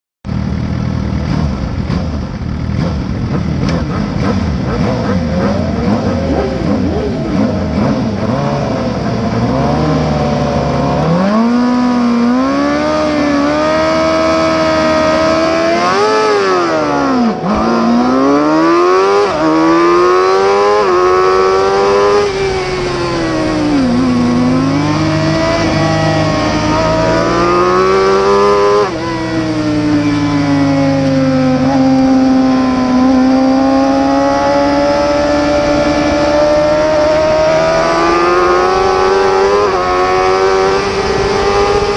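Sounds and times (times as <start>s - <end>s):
motorcycle engine accelerating hard: 0.3s - 41.9s.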